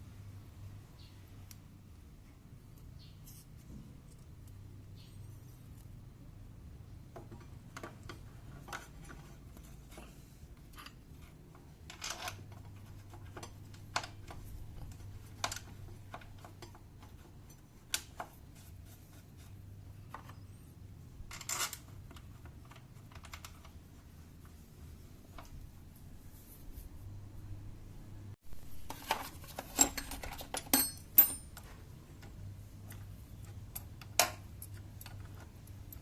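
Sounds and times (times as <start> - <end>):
metal parts rattling: 28.8 - 31.6
metal tools clicking and tapping: 29.1 - 36.0.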